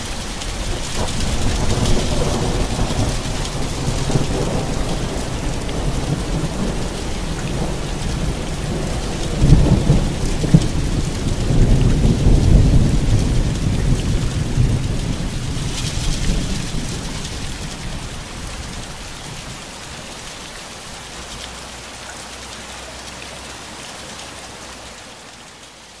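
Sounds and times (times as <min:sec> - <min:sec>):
rolling thunder rumbles: 0:00.0 - 0:20.0
steady rain: 0:00.0 - 0:26.0
thunder crack: 0:00.6 - 0:17.4.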